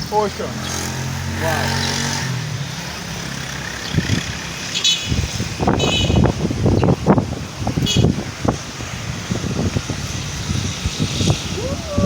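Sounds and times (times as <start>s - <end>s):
wind buffeting microphone: 3.8s - 12.0s.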